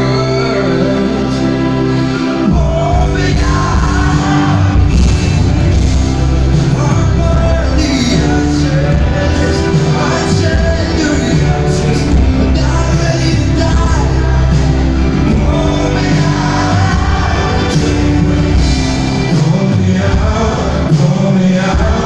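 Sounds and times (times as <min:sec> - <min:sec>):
live rock-pop band: 0:00.0 - 0:22.0
person singing: 0:00.0 - 0:22.0.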